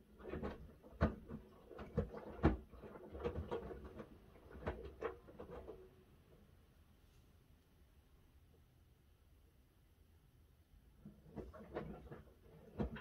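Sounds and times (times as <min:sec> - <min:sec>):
washing machine drum thumps and sloshes: 0:00.3 - 0:05.1.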